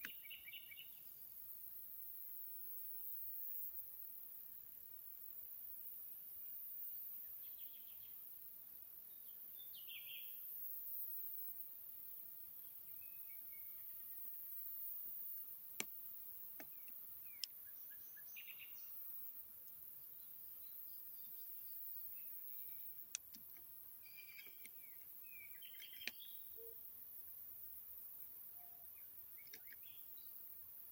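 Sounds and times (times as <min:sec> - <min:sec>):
songbirds chirping: 0:00.0 - 0:02.6, 0:07.1 - 0:10.7, 0:12.0 - 0:30.9
faint birdsong: 0:00.0 - 0:03.8, 0:06.1 - 0:30.9
sharp clicks: 0:23.0 - 0:24.8, 0:25.6 - 0:26.2.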